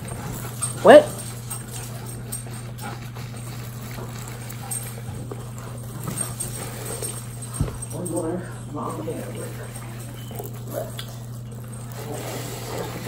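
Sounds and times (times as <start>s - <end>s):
steady low hum: 0.0s - 13.0s
biting and chewing corn: 1.4s - 7.4s, 9.2s - 13.0s.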